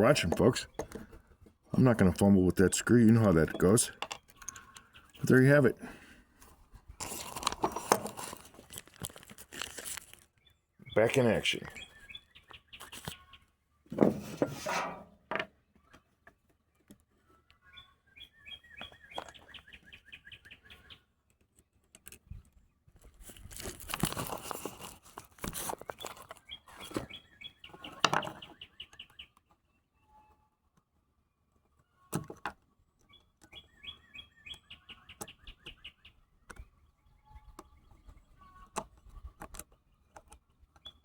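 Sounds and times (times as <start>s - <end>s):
handling knocks and rustling: 7.0s - 10.3s, 13.9s - 17.0s, 23.0s - 27.2s.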